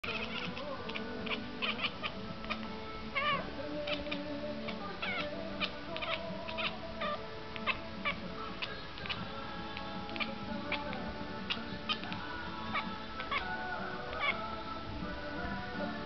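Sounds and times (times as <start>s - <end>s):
kitten chattering chirps: 0.0s - 9.2s.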